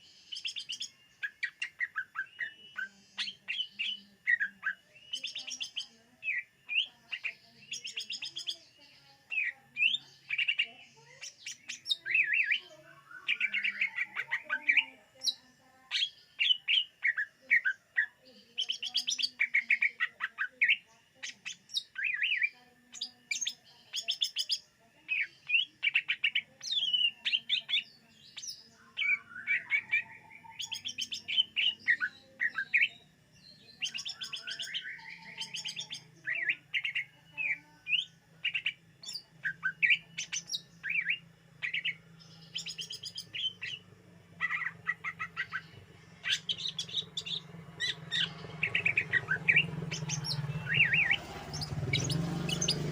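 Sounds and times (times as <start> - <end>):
bird singing chirps and trills: 0.0 - 52.9.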